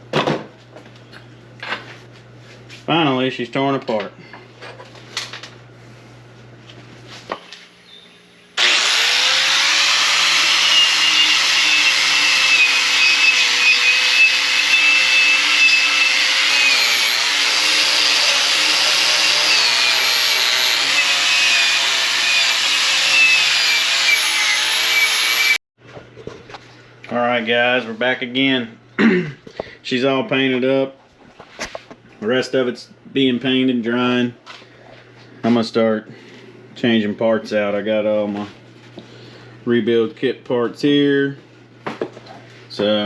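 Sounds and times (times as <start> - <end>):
power tool motor whining: 8.6 - 25.6.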